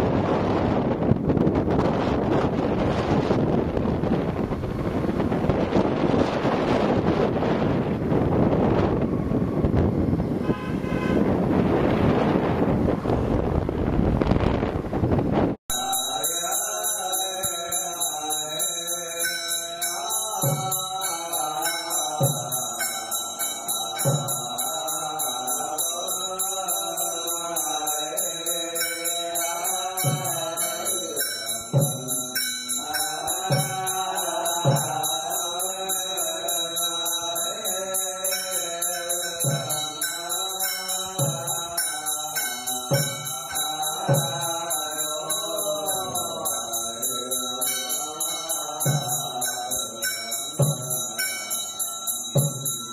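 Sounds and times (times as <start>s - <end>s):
group chanting: 15.7s - 52.9s
high jingling: 15.7s - 52.9s
drum beat: 30.0s - 30.6s, 50.6s - 51.1s, 52.3s - 52.9s.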